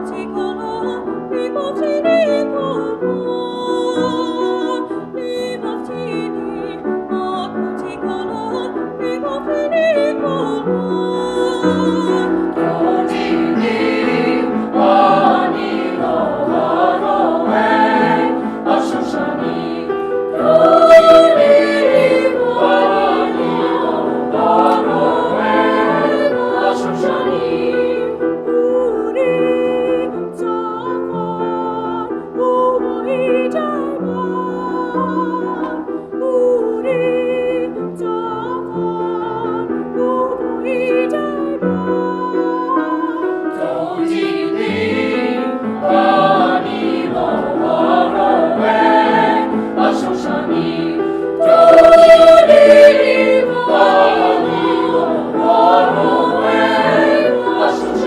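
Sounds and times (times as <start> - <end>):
choir singing sustained chords: 10.7 - 30.2, 43.4 - 58.0.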